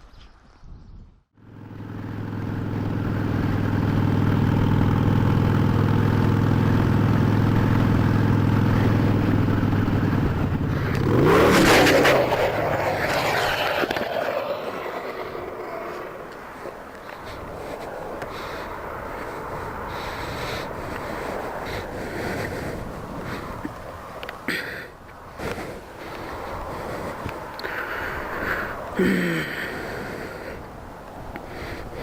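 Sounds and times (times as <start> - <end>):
motorcycle engine running: 1.4 - 17.8.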